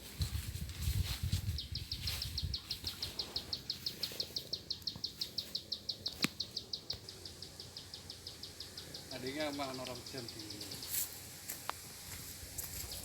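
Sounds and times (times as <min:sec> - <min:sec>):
rapid high chirps: 0:01.8 - 0:11.4.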